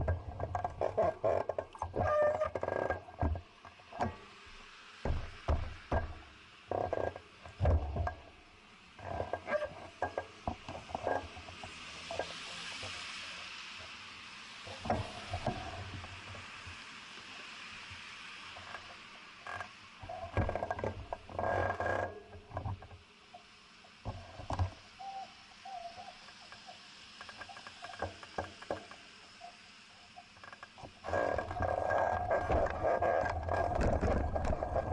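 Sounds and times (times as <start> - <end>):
hiss: 0.0 - 34.9
bicycle knocks and rattles: 5.0 - 8.2.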